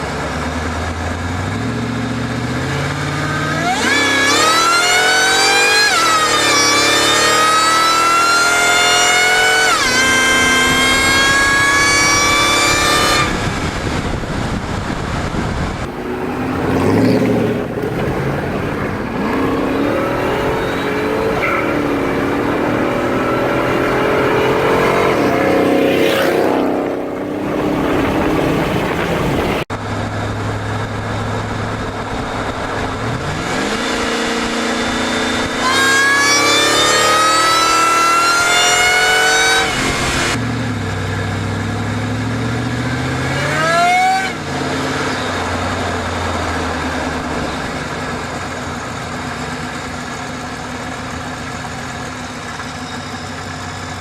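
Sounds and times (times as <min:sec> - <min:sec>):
high engine whine: 0:00.0 - 0:54.0
pickup engine revving past: 0:15.8 - 0:29.7.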